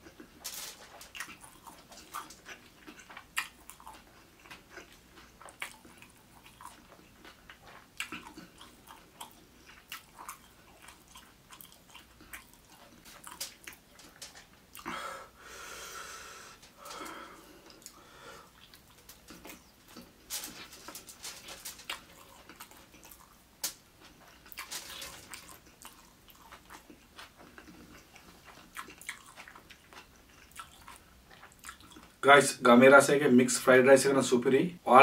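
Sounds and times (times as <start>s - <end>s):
wet chewing: 0.0s - 15.0s, 16.7s - 32.2s
breathy exhale: 14.9s - 18.6s.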